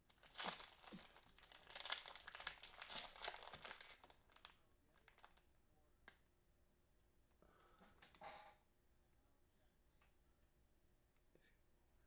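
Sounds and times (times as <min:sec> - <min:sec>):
plastic packaging crinkling: 0:00.0 - 0:05.4.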